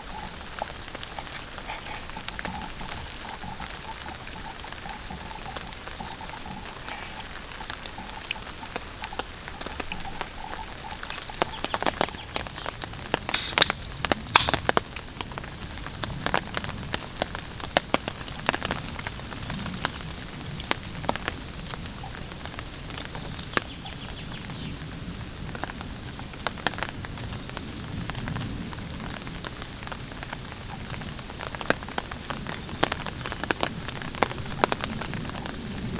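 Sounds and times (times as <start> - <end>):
raindrops tapping on tarp: 0.0 - 23.8, 25.5 - 35.9
rain hissing: 13.0 - 16.2.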